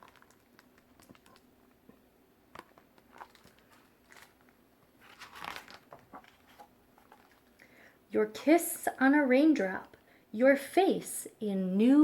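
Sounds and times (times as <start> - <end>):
paper pages rustling and turning: 0.0 - 1.5, 2.5 - 7.6
page swishing: 5.0 - 7.4.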